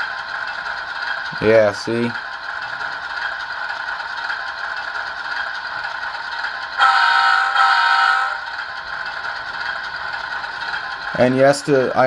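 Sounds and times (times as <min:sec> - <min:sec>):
diesel locomotive idling: 0:00.0 - 0:12.0
locomotive air horn blasts: 0:06.8 - 0:08.6.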